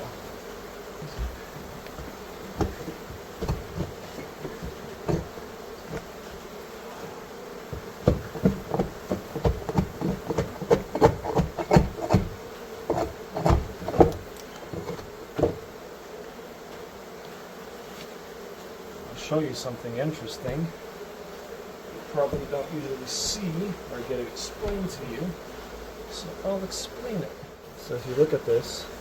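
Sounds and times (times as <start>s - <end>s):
honeybees buzzing: 0.0s - 29.0s
irregular knocks and thumps: 1.0s - 6.5s, 7.6s - 15.8s, 22.2s - 22.7s.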